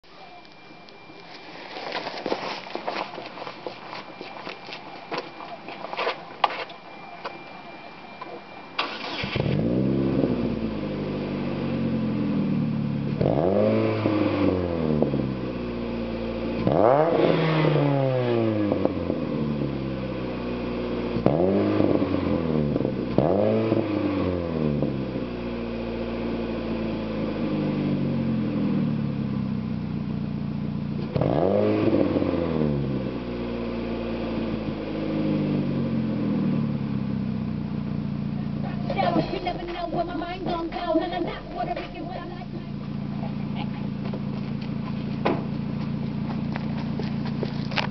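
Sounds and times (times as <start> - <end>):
car engine idling and revving: 8.1 - 47.9.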